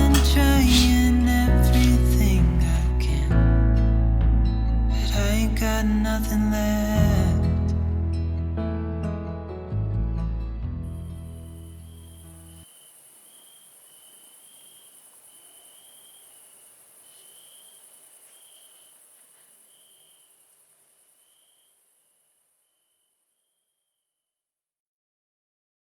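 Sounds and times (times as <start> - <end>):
insects chirping: 0.0 - 3.2, 11.2 - 23.8
background music: 0.0 - 12.0.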